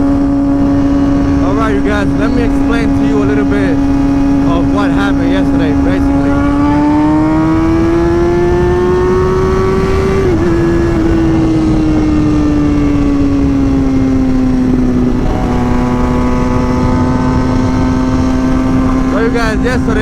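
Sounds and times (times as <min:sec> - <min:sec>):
motorcycle engine cruising: 0:00.0 - 0:20.0
wind noise: 0:00.0 - 0:20.0.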